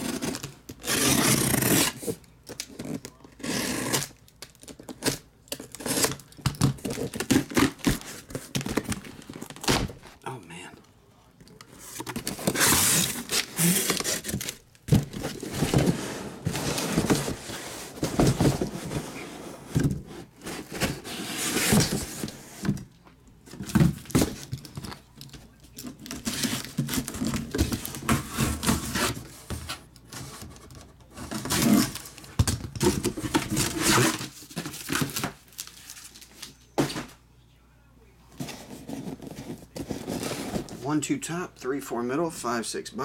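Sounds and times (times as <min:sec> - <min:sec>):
cardboard box being handled: 0:11.8 - 0:22.8
plastic shrink wrap tearing: 0:12.1 - 0:14.6.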